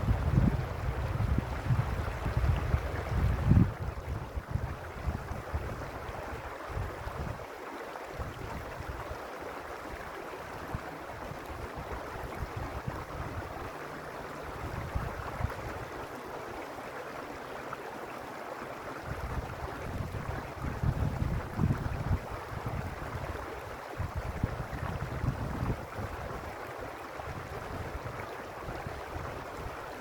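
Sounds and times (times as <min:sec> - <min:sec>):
wind buffeting microphone: 0:00.0 - 0:07.4, 0:10.5 - 0:13.8, 0:14.4 - 0:16.0, 0:19.0 - 0:26.6
creek water running: 0:00.0 - 0:30.0.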